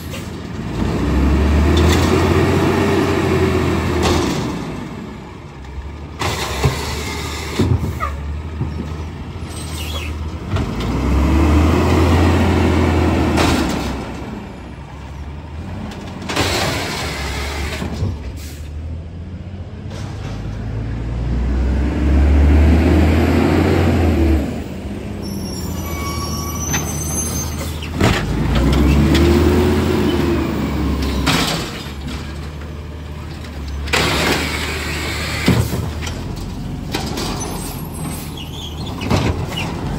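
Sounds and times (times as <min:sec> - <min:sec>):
garbage truck engine revving: 0:00.6 - 0:05.3, 0:09.8 - 0:14.5, 0:20.7 - 0:39.9
air brakes hissing: 0:18.3 - 0:18.8.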